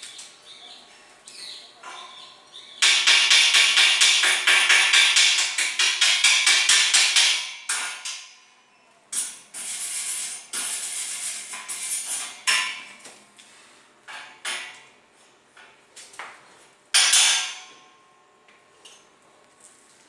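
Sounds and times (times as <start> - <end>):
hammering on steel: 1.8 - 8.4, 17.0 - 17.7.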